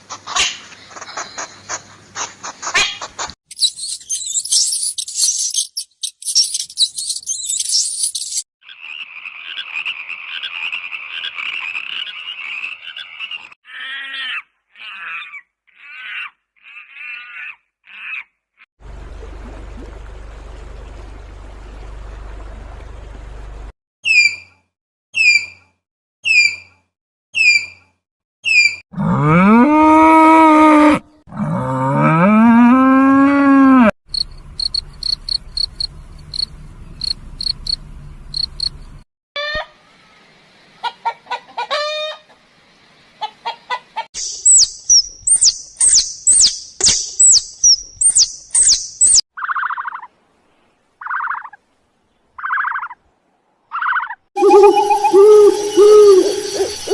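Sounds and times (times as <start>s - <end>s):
high chirping and trilling: 3.5s - 8.4s, 44.2s - 49.9s, 53.9s - 56.9s
animal chirps: 44.2s - 50.1s, 53.7s - 56.9s
fast high repeated calls: 53.9s - 56.9s.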